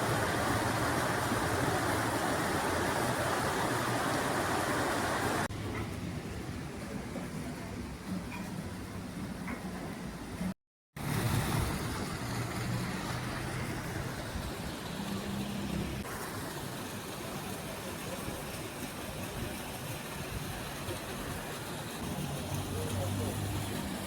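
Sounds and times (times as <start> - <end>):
road noise hiss: 0.0 - 8.1, 10.0 - 24.0
vehicle engine hum: 11.0 - 16.1.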